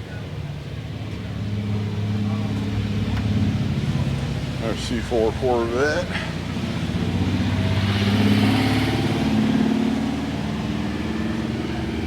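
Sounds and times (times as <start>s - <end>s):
car engine driving past: 6.0s - 12.0s.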